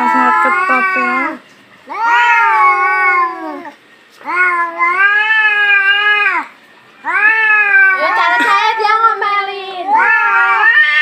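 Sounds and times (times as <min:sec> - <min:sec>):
cats yowling: 0:00.0 - 0:11.0.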